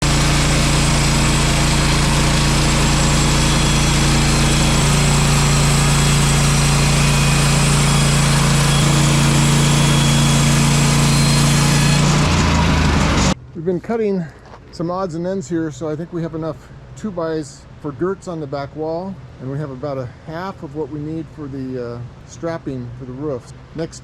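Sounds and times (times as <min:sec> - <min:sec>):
sawmill gas engine drone: 0:00.0 - 0:13.4.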